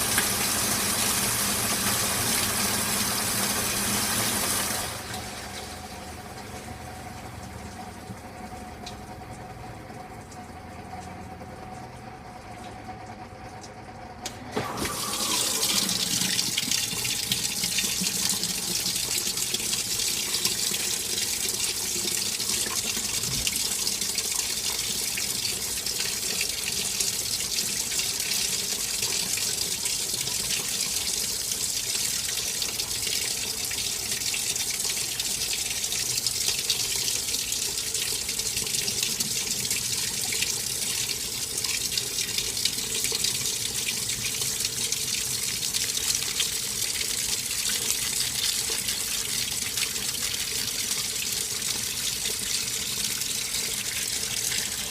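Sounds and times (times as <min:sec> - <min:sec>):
water running into plastic tub: 0:00.0 - 0:11.0, 0:14.5 - 0:54.9.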